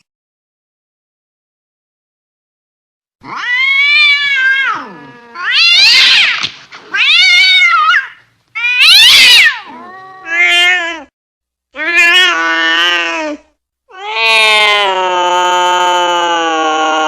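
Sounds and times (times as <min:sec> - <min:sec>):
cat yowling: 0:03.2 - 0:11.1, 0:11.8 - 0:17.0.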